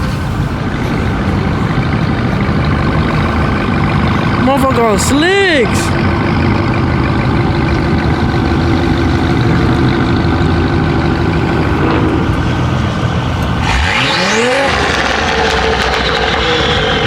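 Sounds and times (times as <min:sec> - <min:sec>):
car engines running: 0:00.0 - 0:17.0
engine revving up: 0:08.4 - 0:17.0.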